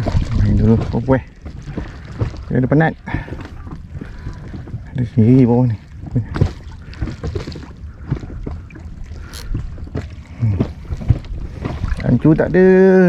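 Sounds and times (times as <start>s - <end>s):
water sloshing against boat: 0.0s - 12.9s.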